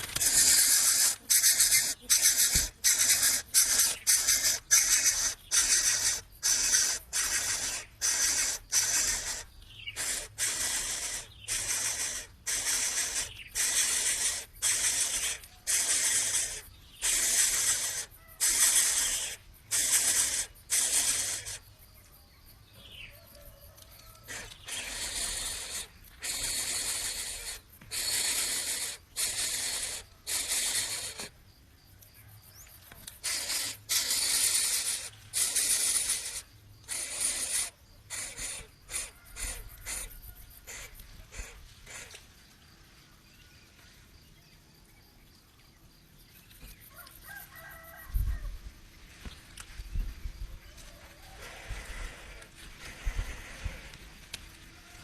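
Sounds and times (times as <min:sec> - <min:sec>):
bird chick hissing harshly: 0:00.0 - 0:21.7, 0:24.1 - 0:31.4, 0:33.1 - 0:42.2, 0:51.2 - 0:54.2.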